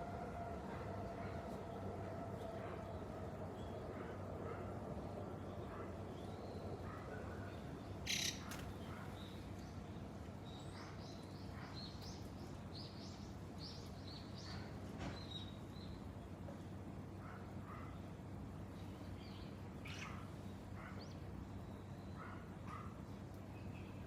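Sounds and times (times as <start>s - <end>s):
low background hum: 0.0s - 24.0s
birds chirping: 7.4s - 9.6s.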